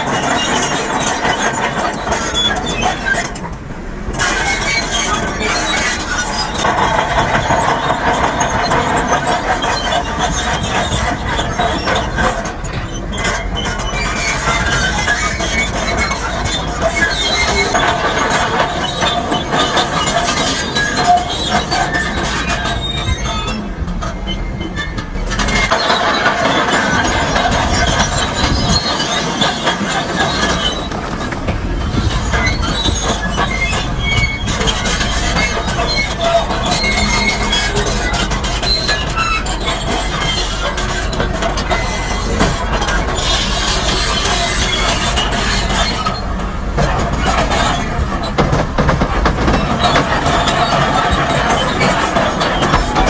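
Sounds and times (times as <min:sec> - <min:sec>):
heavy machinery engine rumble: 0:00.0 - 0:53.0
machinery clanks: 0:00.0 - 0:53.0.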